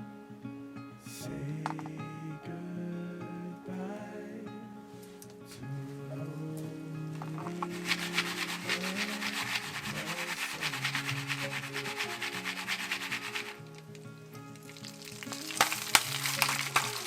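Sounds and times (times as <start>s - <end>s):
soft background music: 0.0s - 17.0s
fast scraping strokes: 7.2s - 13.8s.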